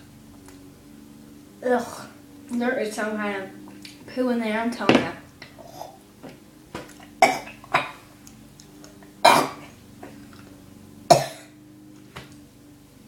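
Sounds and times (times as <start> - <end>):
person coughing: 7.2 - 8.0, 9.2 - 9.7, 11.1 - 11.5.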